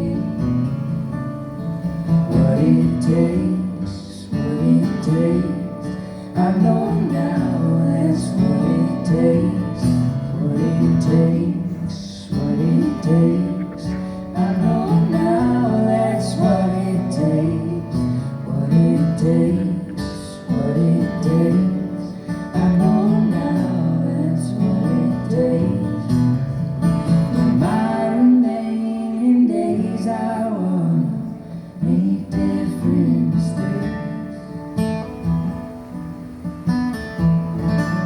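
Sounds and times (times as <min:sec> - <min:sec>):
live band guitar-led instrumental: 0:00.0 - 0:38.0.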